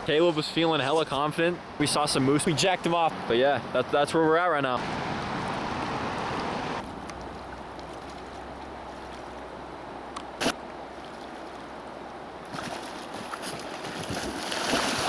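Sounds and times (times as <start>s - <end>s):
river water rushing: 3.1s - 15.0s.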